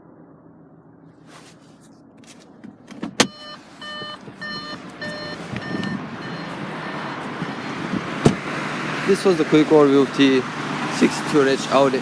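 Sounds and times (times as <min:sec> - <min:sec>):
background traffic noise: 0:00.0 - 0:12.0
car warning chime beeping: 0:03.2 - 0:07.1.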